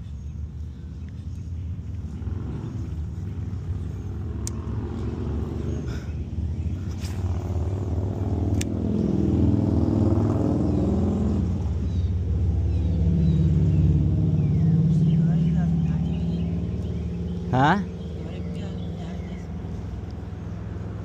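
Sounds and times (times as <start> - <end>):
road traffic drone: 0.0 - 21.0.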